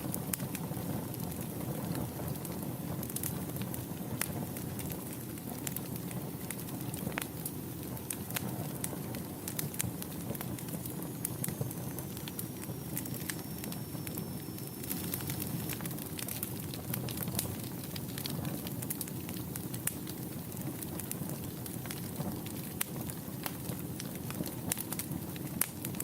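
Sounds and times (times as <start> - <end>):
fire crackling and popping: 0.0 - 26.0
faint high whistle: 11.5 - 15.8.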